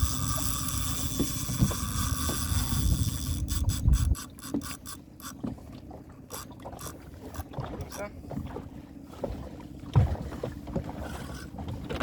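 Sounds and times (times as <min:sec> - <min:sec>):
fishing reel drag buzzing: 0:00.0 - 0:05.4, 0:06.3 - 0:07.5.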